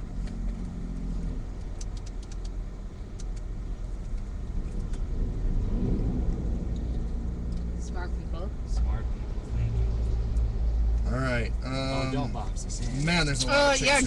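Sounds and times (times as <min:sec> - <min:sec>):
car road and engine rumble: 0:00.0 - 0:14.0
faint clicks: 0:01.6 - 0:05.0.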